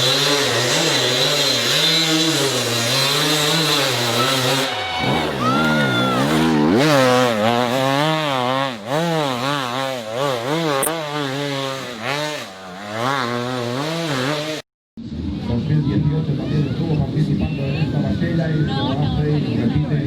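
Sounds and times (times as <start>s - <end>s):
dirt bike engine revving: 0.0s - 15.2s.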